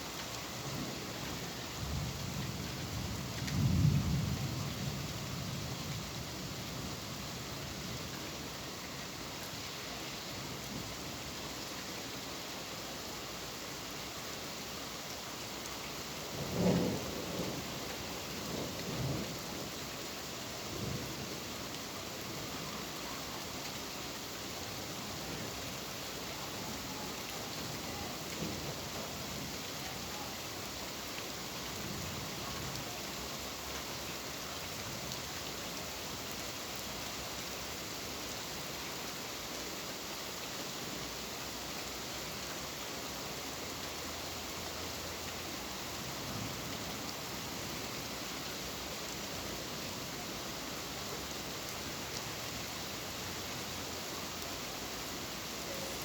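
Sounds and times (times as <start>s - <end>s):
steady rain falling: 0.0s - 56.0s
thunder rumbles: 1.8s - 6.1s, 16.3s - 19.7s.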